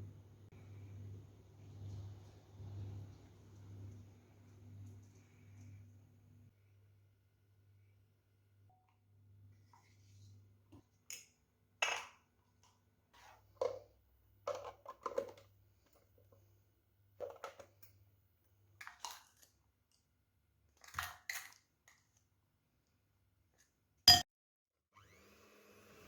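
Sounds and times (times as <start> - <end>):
faint low hum: 0.0 - 10.6.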